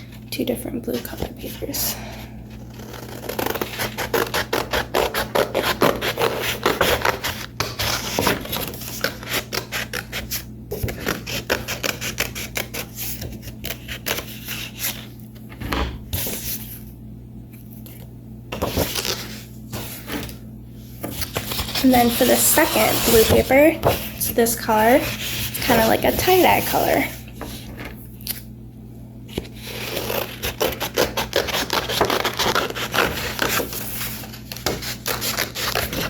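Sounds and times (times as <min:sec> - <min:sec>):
scissors cutting paper: 0:02.6 - 0:15.0, 0:21.1 - 0:27.6, 0:29.3 - 0:36.0.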